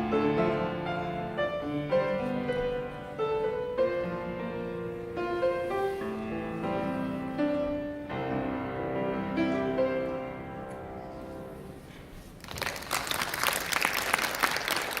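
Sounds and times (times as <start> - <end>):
piano playing: 0.0 - 12.2
audience applause: 12.4 - 15.0.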